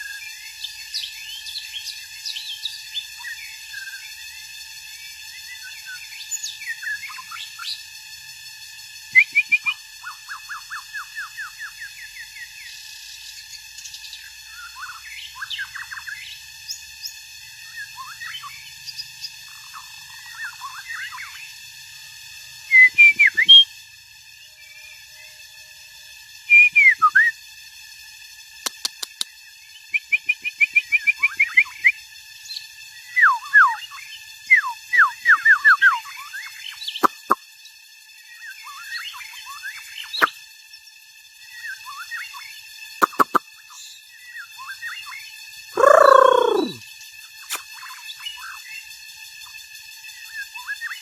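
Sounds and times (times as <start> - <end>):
bird singing whistled notes: 0.0 - 4.2, 4.9 - 7.8, 9.1 - 21.6, 22.6 - 23.8, 26.4 - 27.4, 29.4 - 37.4, 38.2 - 46.8, 50.1 - 51.0
bird clicks: 28.7 - 29.3, 43.0 - 43.4.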